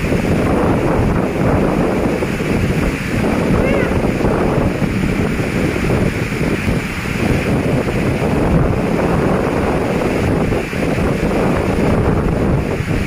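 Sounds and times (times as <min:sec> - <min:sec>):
storm wind on microphone: 0:00.0 - 0:13.0.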